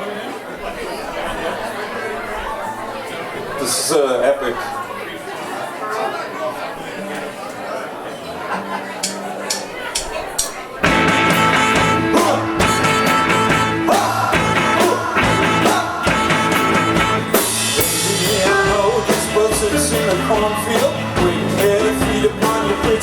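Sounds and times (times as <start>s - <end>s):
drum kit beating: 9.0s - 23.0s
electric guitars: 10.8s - 23.0s.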